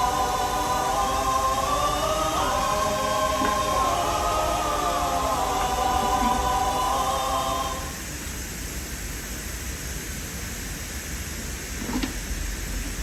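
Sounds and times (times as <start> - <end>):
choir-like singing in music: 0.0 - 8.2
steady hiss: 0.0 - 13.0.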